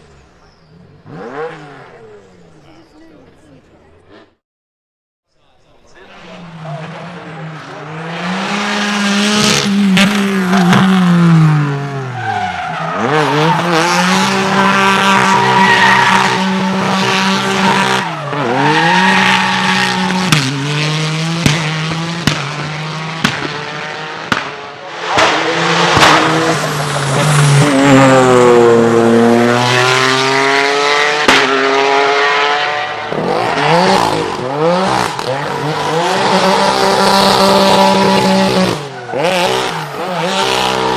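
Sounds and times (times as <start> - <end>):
car engine at high revs: 0.0 - 2.6, 6.1 - 40.9
tyre squeal: 15.1 - 16.6.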